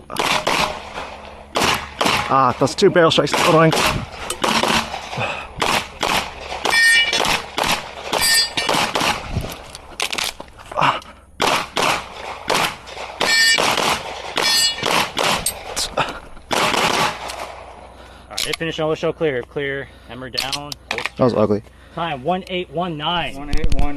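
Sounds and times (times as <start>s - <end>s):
pistol shots: 0.0s - 9.4s, 11.4s - 15.8s, 16.5s - 17.9s
short metallic ring: 6.6s - 7.2s, 8.2s - 8.8s, 13.2s - 13.6s, 14.4s - 14.9s.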